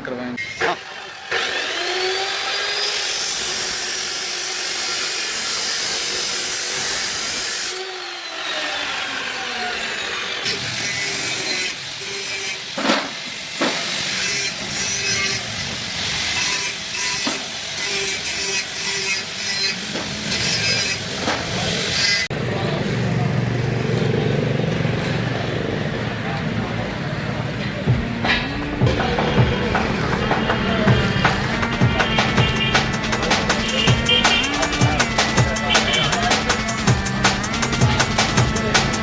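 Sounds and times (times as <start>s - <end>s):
angle grinder on metal: 0.4s - 25.9s, 28.2s - 39.0s
sharp knocks: 27.9s - 39.0s.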